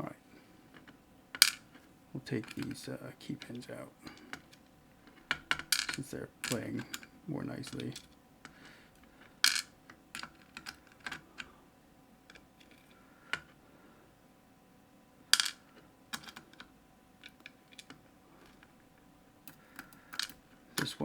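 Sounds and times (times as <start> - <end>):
clicks of lock parts and tools: 5.2 - 7.1.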